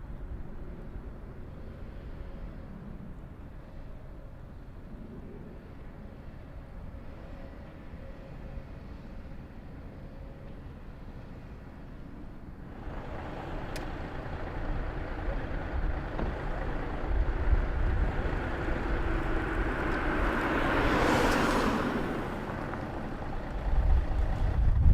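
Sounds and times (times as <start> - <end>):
wind buffeting microphone: 12.7 - 21.2, 22.2 - 24.9
car driving past: 12.7 - 24.5.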